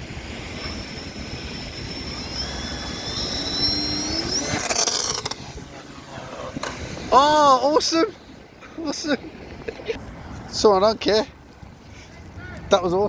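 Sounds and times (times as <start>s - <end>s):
model aeroplane motor whining: 0.0s - 7.1s.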